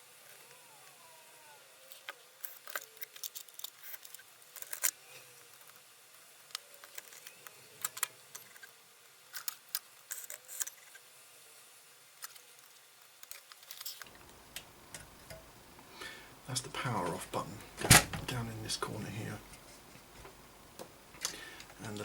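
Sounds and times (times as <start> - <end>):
small clicks and rattles of parts: 1.9 - 11.1, 12.2 - 15.5.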